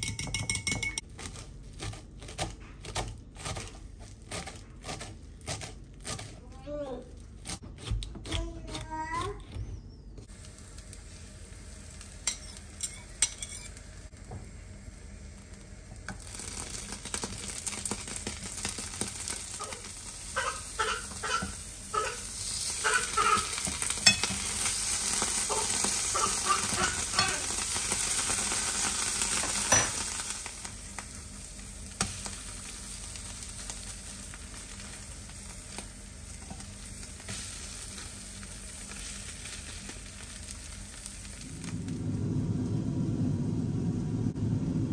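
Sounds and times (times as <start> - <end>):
food sizzling in a pan: 10.3 - 42.5
utensil scraping pan: 12.2 - 13.8.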